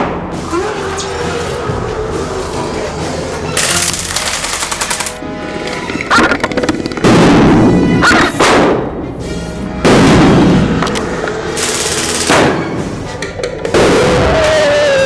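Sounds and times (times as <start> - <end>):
music: 0.0 - 15.0
airsoft guns firing bursts: 3.6 - 5.2, 11.6 - 12.6.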